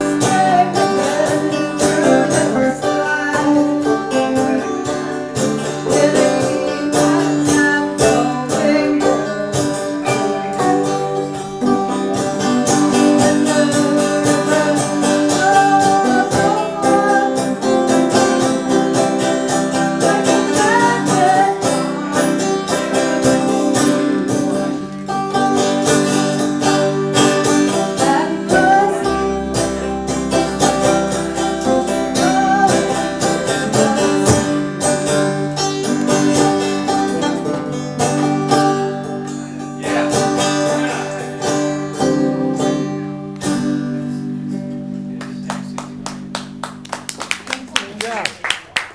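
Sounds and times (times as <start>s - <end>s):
banjo: 0.0s - 46.8s.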